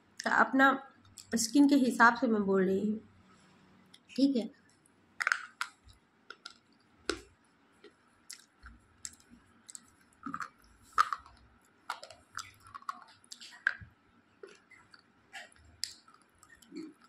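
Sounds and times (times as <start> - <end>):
crunching and chewing: 4.7 - 17.0.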